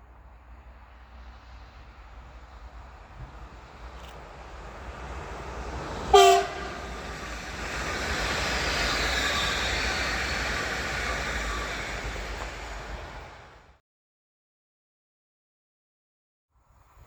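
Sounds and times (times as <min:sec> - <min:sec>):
train rumbling past: 0:00.0 - 0:13.8
train horn blast: 0:06.1 - 0:07.1.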